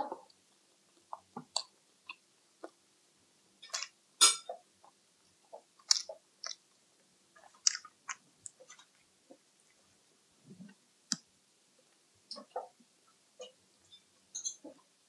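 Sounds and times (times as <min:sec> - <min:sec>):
chewing and wet mouth smacks: 0:01.1 - 0:02.2, 0:05.8 - 0:06.6, 0:07.4 - 0:08.6.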